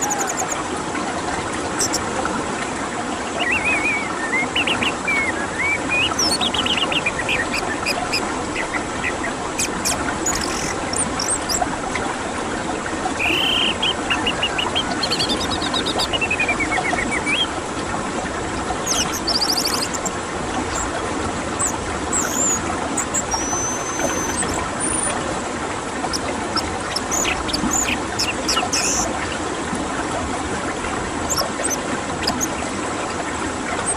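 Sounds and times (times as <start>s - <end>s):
bird chirps and whistles: 0.0s - 0.6s, 3.4s - 8.8s, 9.6s - 11.6s, 13.2s - 17.5s, 18.9s - 20.1s, 21.6s - 25.1s, 26.6s - 29.1s
flowing water rushing: 0.0s - 33.9s.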